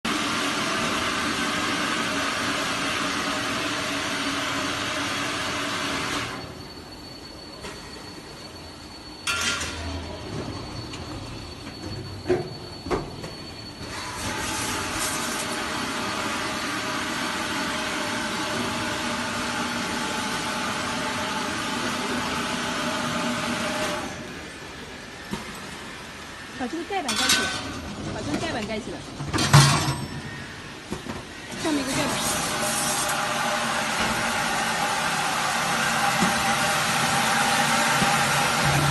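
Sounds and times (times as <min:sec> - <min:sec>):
machine hissing: 0:31.6 - 0:38.9
machine low hum: 0:33.9 - 0:38.9.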